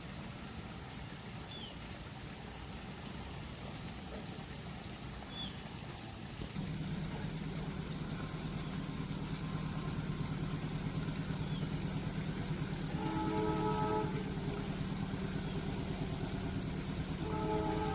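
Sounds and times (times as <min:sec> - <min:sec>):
deep engine hum: 0:06.6 - 0:17.9
vehicle engines idling: 0:06.6 - 0:17.9.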